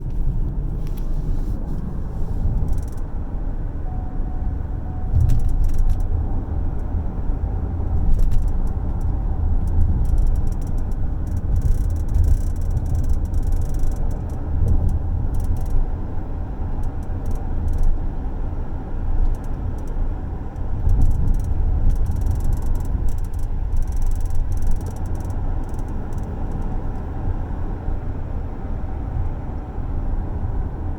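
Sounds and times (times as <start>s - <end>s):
road noise in car cabin: 0.0s - 30.9s
car seat rattling: 5.1s - 6.1s.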